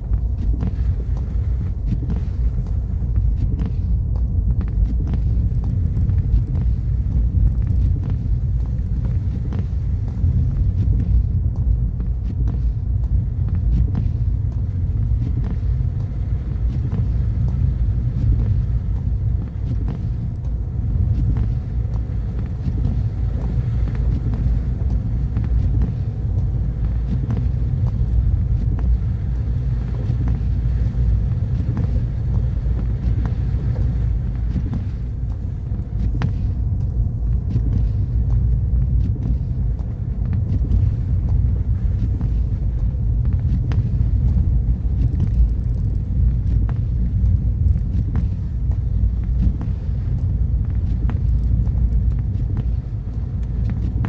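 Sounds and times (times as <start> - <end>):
car engine and tyre rumble: 0.0 - 54.0
faint clicks: 4.7 - 11.0, 43.3 - 54.0.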